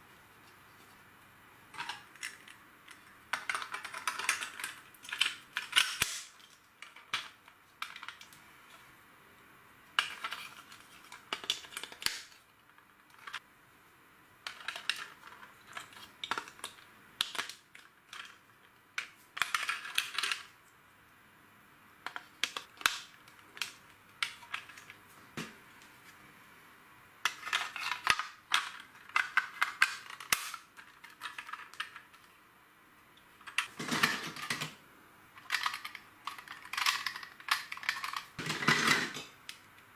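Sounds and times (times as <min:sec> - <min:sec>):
plastic bricks clicking: 0:01.8 - 0:08.4, 0:14.4 - 0:18.4, 0:19.0 - 0:20.5, 0:27.2 - 0:32.3, 0:35.4 - 0:39.6.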